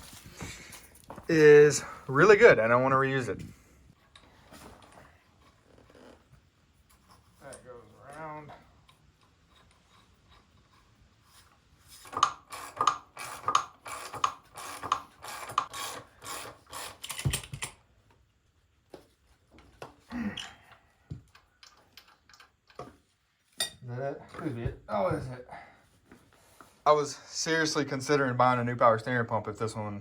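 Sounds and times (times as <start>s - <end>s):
hand tool clicking strokes: 12.0s - 17.7s.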